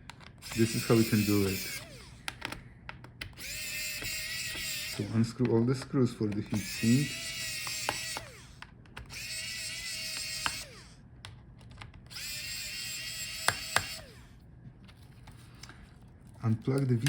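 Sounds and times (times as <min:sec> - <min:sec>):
electric screwdriver whine: 0:00.4 - 0:02.4, 0:03.3 - 0:05.4, 0:06.4 - 0:11.0, 0:12.1 - 0:14.4.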